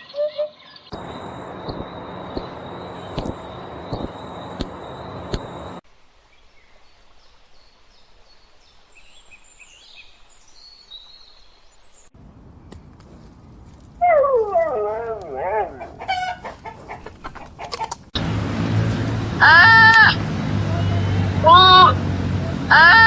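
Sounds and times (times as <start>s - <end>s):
faint birdsong: 0.0s - 5.8s
sharp high-pitched chirp: 0.9s - 5.8s
steady high tone: 0.9s - 5.8s.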